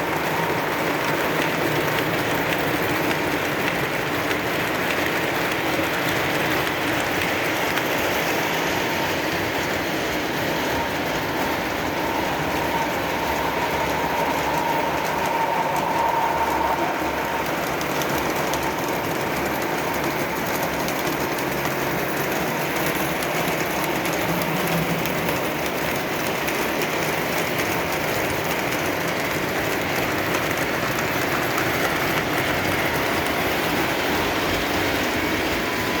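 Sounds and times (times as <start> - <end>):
model train wheels clattering on rails: 0.0 - 36.0.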